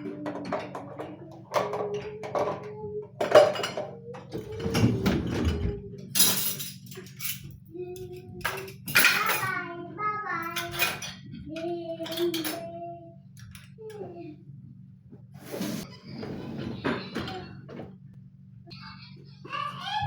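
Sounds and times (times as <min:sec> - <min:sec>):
dishes and cutlery clinking: 0:00.0 - 0:09.6, 0:10.5 - 0:12.8
baby's voice: 0:07.7 - 0:13.2, 0:13.8 - 0:14.4, 0:18.7 - 0:20.0.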